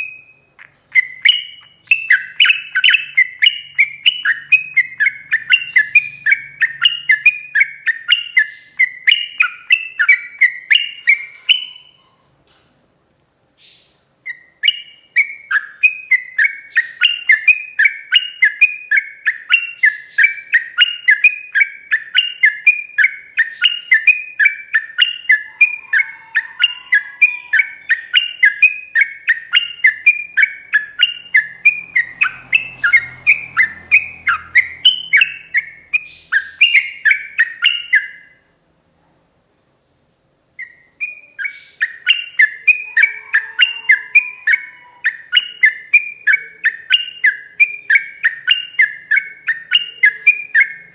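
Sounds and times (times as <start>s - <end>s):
bird singing rapid slurred notes: 0.0s - 12.1s, 13.6s - 38.4s, 40.6s - 50.9s.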